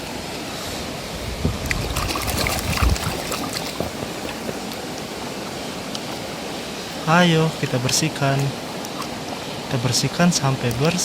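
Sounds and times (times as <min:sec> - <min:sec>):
running water: 0:00.0 - 0:11.0
splashing and small knocks: 0:01.6 - 0:05.1.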